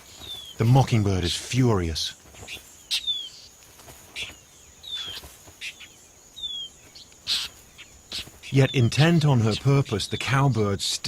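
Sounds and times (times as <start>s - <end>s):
bird harsh scolding calls: 0.0s - 11.0s
insect trill: 0.0s - 11.0s.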